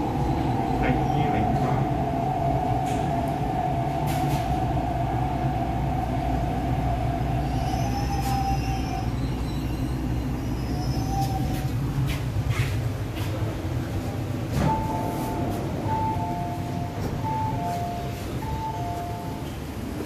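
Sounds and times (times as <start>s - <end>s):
train rumble: 0.0s - 20.0s.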